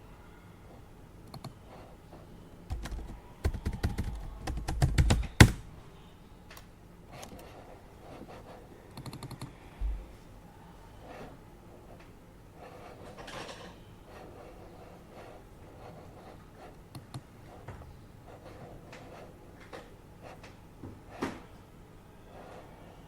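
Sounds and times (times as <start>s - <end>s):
typing on a computer keyboard: 1.2s - 1.6s, 2.7s - 5.6s, 9.0s - 9.5s.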